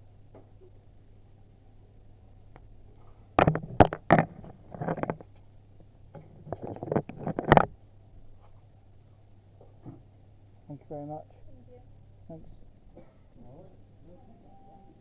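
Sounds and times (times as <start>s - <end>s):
handling knocks and rustles: 3.0s - 5.4s.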